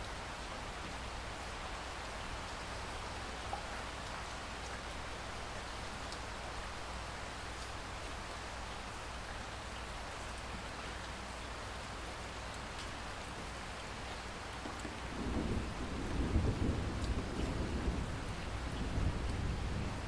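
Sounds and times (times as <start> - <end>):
steady rain falling: 0.0 - 20.0
low thunder rumble: 15.1 - 20.0.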